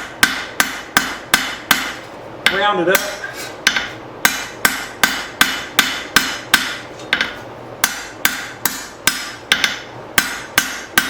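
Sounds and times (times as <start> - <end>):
hammer ringing on anvil: 0.0 - 11.0.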